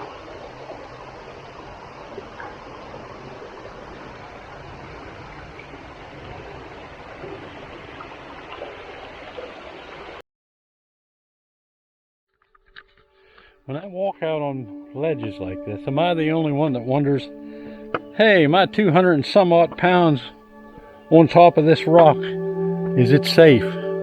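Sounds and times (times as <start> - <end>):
flowing water rushing: 0.0 - 10.2.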